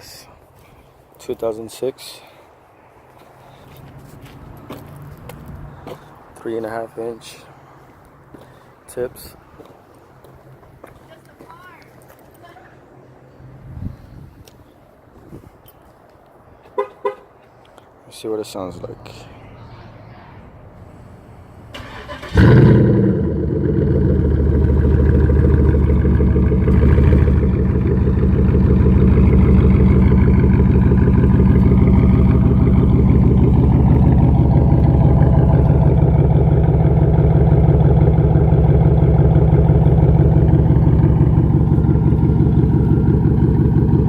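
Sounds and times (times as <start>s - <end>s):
car engine starting and idling: 21.5s - 44.0s.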